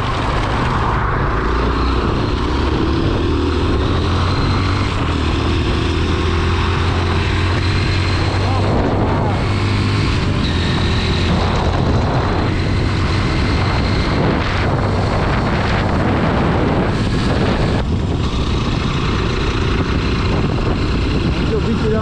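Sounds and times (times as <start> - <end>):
motorcycle engine running: 0.0 - 22.0
wind rush on microphone: 0.0 - 22.0.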